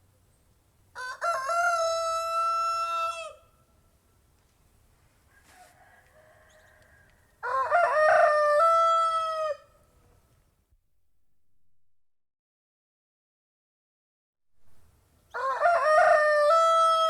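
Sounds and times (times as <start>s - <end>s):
rooster crowing: 1.0s - 3.5s, 5.3s - 9.8s, 15.3s - 17.0s.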